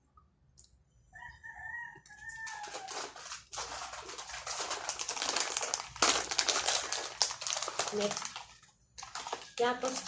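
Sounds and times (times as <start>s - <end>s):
rooster crowing: 1.1s - 3.2s
corn chips crackling and crunching: 2.2s - 10.0s.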